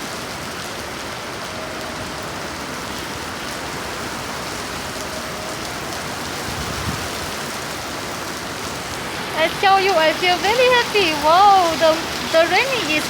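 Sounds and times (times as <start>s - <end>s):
heavy rain pattering: 0.0s - 13.0s.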